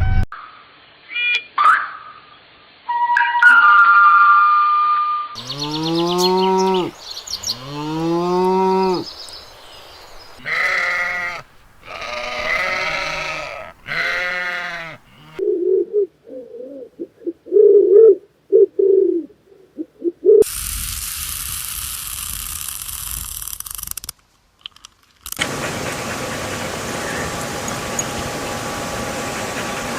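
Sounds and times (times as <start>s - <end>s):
sheep bleating: 5.4s - 9.1s, 10.4s - 15.4s.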